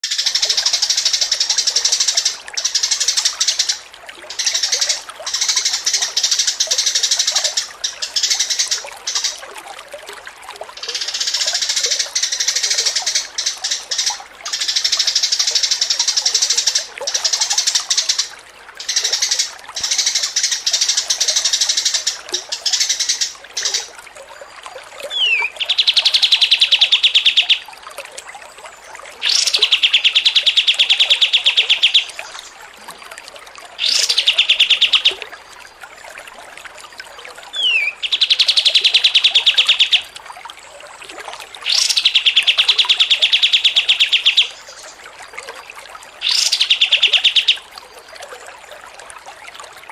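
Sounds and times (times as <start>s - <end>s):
songbirds singing: 10.6s - 48.8s
rapid bird trills: 25.1s - 27.7s, 29.2s - 32.5s, 33.8s - 35.2s, 37.5s - 40.2s, 41.6s - 45.0s, 46.2s - 47.7s.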